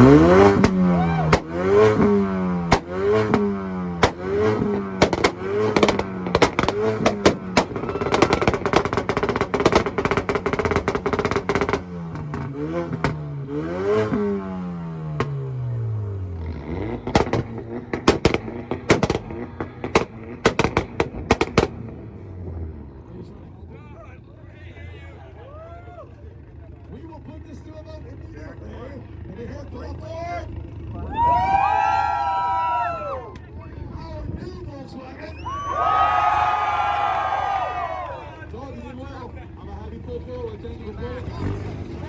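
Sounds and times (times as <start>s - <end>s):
exhaust pops and cracks: 0.0s - 13.3s, 15.2s - 15.4s, 16.9s - 22.1s
car engine revving: 0.0s - 23.7s, 38.9s - 42.0s.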